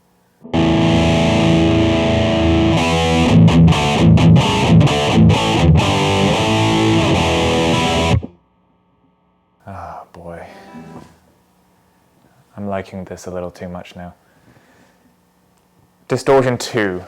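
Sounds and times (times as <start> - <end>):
distorted electric guitar: 0.4 - 8.4.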